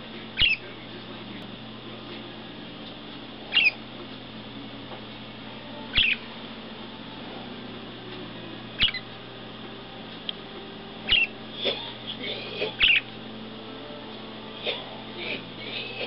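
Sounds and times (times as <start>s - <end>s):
bird squawks: 0.4s - 0.7s, 3.5s - 3.8s, 5.9s - 6.3s, 8.8s - 9.1s, 11.1s - 13.1s
soft bird chirps: 0.4s - 0.7s, 3.5s - 3.8s, 5.9s - 6.3s, 8.8s - 9.1s, 11.1s - 11.3s, 12.8s - 13.1s.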